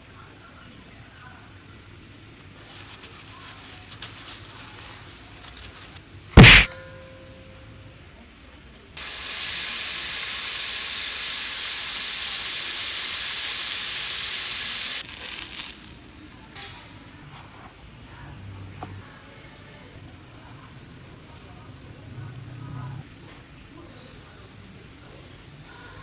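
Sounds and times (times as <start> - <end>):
food sizzling in a frying pan: 9.0 - 16.6.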